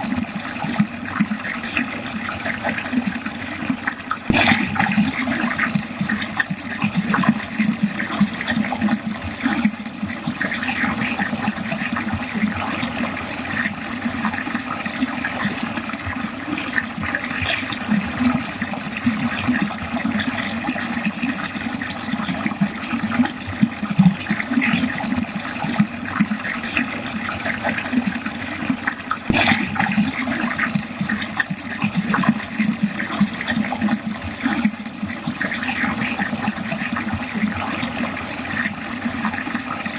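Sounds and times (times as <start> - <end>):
water pouring into a drain: 0.0 - 39.9
sharp water splash: 4.2 - 7.4, 29.2 - 33.5.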